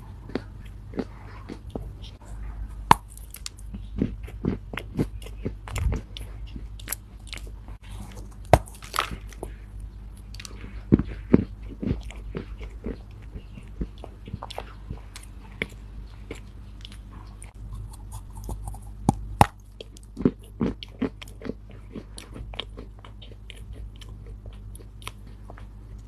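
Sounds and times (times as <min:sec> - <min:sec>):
soft crunchy chewing: 0:00.0 - 0:26.0
sharp crunchy bites: 0:02.9 - 0:09.6.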